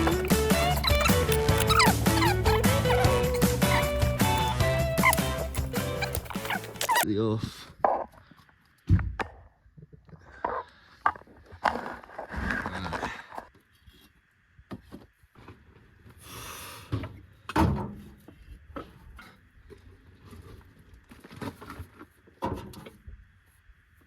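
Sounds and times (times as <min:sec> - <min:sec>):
metal knocks and scraping: 0:00.0 - 0:07.0.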